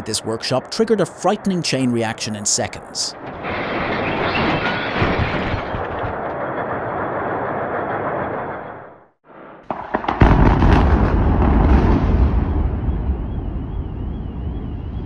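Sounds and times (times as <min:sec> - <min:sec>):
rapid crackling bangs: 0:03.2 - 0:08.6, 0:09.3 - 0:13.4
deep rumbling blast: 0:09.6 - 0:15.0.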